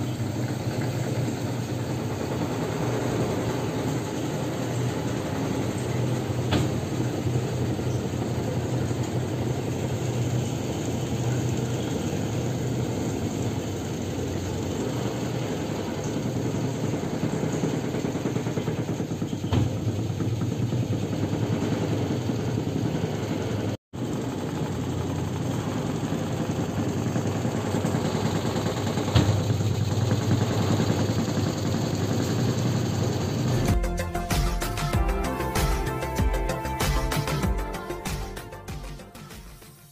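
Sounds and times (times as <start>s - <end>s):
washing machine motor hum: 0.0s - 39.9s
washing machine knocks: 0.7s - 7.6s, 17.0s - 22.5s, 28.2s - 31.0s.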